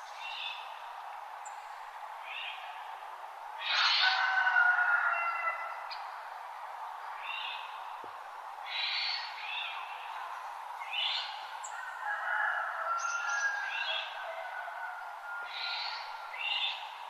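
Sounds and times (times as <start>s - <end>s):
steady background hiss: 0.0s - 12.0s, 12.7s - 17.0s
forest birds chirping: 12.8s - 17.0s.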